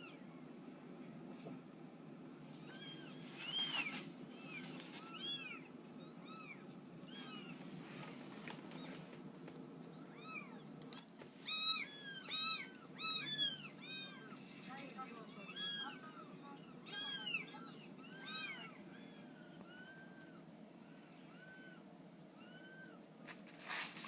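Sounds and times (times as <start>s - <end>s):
cat meowing: 11.4s - 14.4s, 15.3s - 21.8s.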